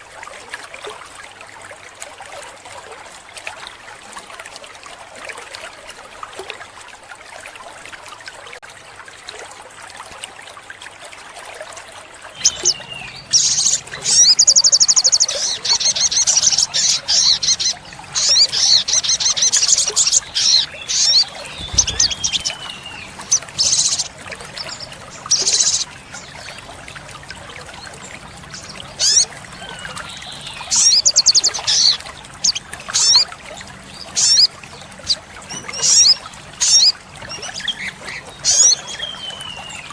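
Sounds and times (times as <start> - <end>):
water trickling: 0.0 - 39.9
bird singing trills and chirps: 12.4 - 26.7, 28.4 - 33.3, 34.0 - 39.9.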